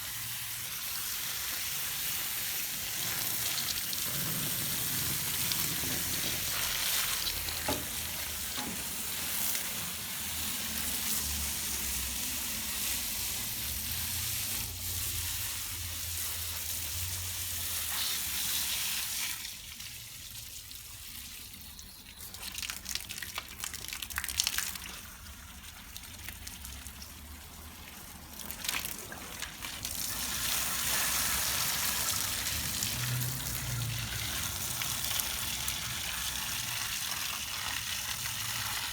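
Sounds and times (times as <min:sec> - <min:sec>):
hissing water spray: 0:00.0 - 0:19.4.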